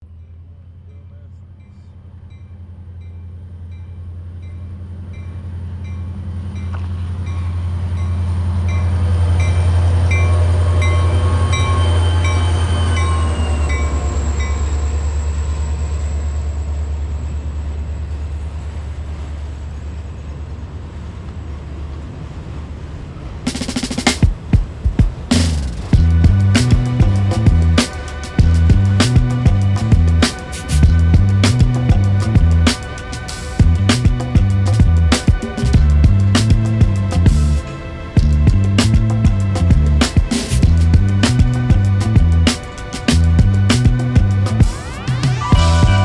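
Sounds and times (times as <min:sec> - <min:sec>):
diesel locomotive passing: 0:00.1 - 0:46.0
loud burst of sound: 0:40.0 - 0:46.0.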